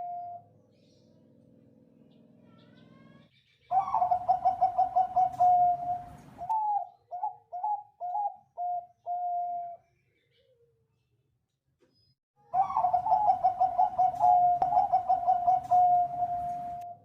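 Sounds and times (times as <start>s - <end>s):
dove cooing song: 0.0s - 0.5s, 3.7s - 10.7s, 12.4s - 17.0s.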